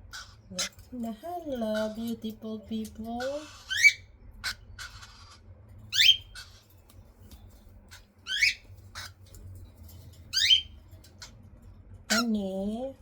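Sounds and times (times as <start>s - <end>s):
cockatiel chicks begging calls: 0.1s - 0.8s, 3.2s - 6.6s, 7.9s - 9.2s, 10.3s - 11.3s, 12.1s - 12.3s.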